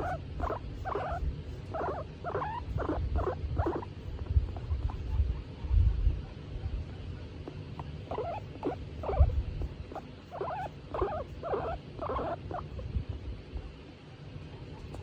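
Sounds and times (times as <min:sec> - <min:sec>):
guinea pig calling: 0:00.0 - 0:05.5, 0:07.2 - 0:13.0.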